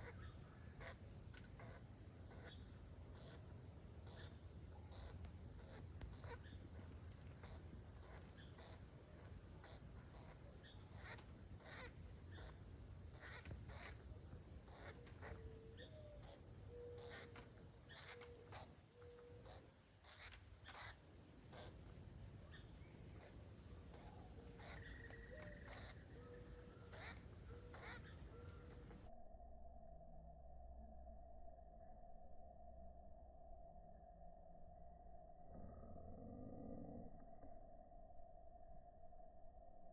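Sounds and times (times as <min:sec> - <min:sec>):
woodpecker buzzing calls: 0:00.0 - 0:29.1
faint high-pitched drone: 0:00.0 - 0:39.9.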